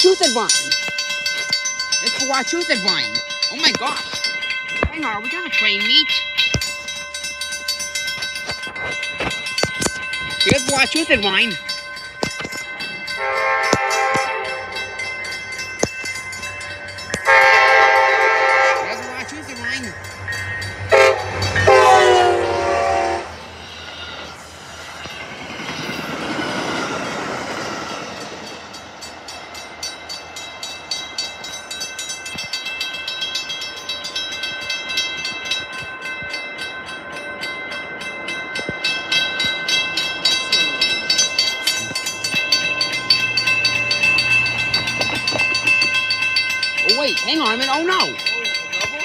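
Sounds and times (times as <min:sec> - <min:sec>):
crossing warning bell ringing: 0:00.0 - 0:49.0
train rumbling past: 0:00.0 - 0:49.0
train horn: 0:13.2 - 0:14.8, 0:17.2 - 0:19.1, 0:20.9 - 0:23.4.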